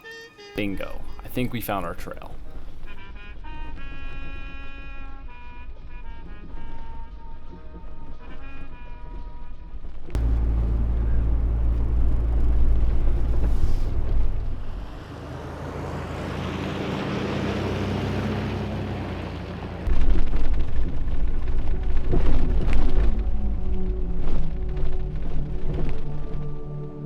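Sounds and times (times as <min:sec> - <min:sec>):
engine and road rumble: 0:09.8 - 0:27.0.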